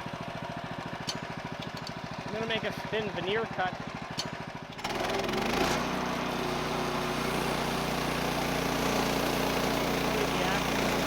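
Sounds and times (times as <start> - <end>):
engine running at full speed: 1.8 - 11.0.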